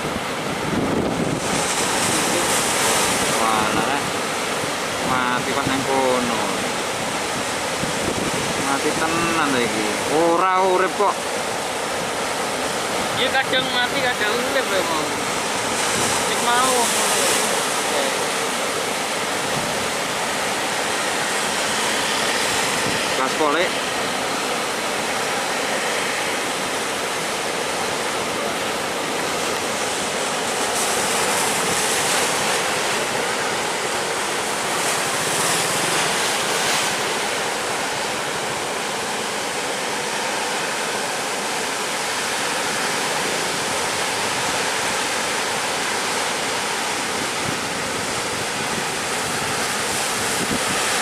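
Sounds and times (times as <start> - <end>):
wind buffeting microphone: 0.0 - 4.4, 6.8 - 9.0, 22.0 - 23.2, 47.0 - 51.0
surf breaking and washing: 0.0 - 51.0.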